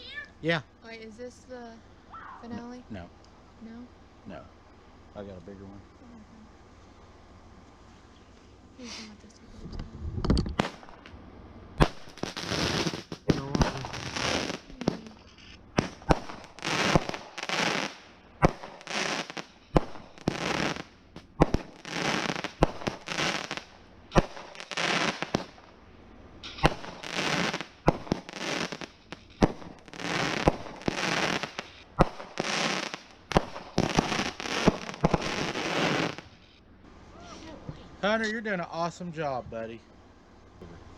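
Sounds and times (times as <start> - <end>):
firework bangs with crackling bursts: 10.2 - 38.5.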